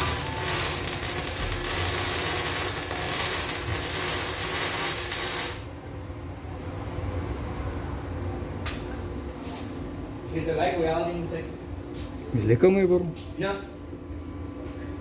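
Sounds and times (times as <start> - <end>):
welding arc crackling and hissing: 0.0 - 5.7.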